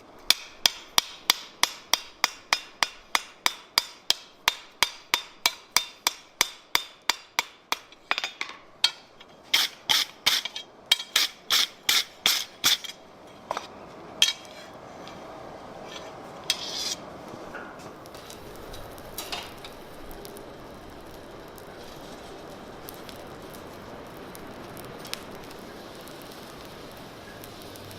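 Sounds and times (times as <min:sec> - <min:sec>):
steady rushing noise: 0:00.0 - 0:27.9
hammer striking steel on anvil: 0:00.3 - 0:15.2.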